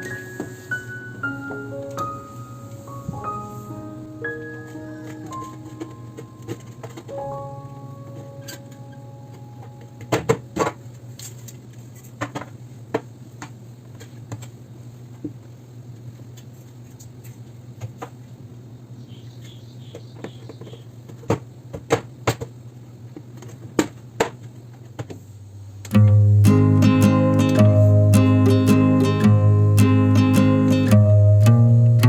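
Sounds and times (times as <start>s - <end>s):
steady low hum: 25.8s - 32.0s.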